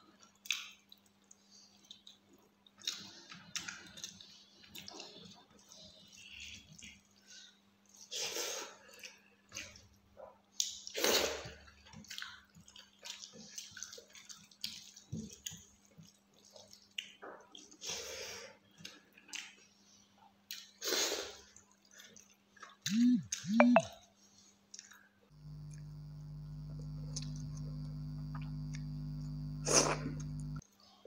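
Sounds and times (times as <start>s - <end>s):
steady low hum: 22.9s - 23.8s, 25.3s - 30.6s
short pitched mouth sounds: 22.9s - 23.9s, 25.5s - 30.6s.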